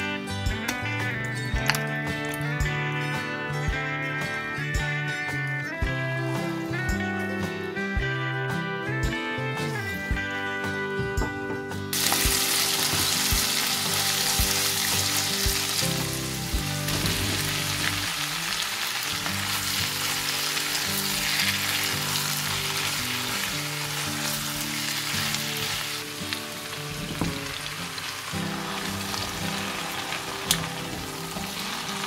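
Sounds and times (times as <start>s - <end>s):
soft guitar music: 0.0s - 32.0s
eggplant sizzling in a pan: 11.9s - 32.0s.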